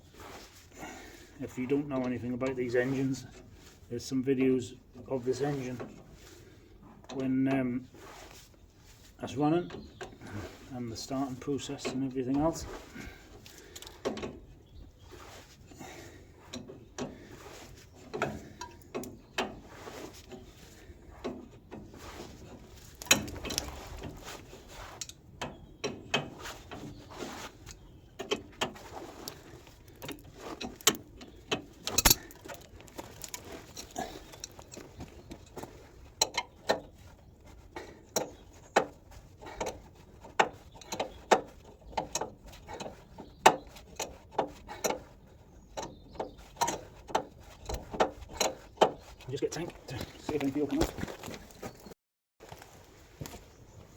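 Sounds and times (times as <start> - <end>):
hand tools clinking on metal: 29.3 - 36.8.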